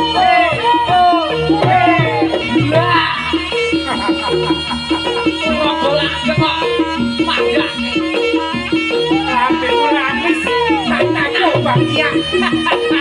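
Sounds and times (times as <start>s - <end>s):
drums: 0.0s - 9.5s
wavering high melody: 0.0s - 13.0s.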